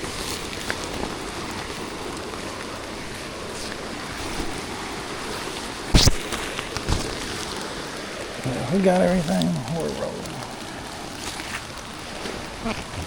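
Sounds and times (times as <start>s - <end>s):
steady rain hiss: 0.0s - 13.0s
loud thump: 6.0s - 6.3s.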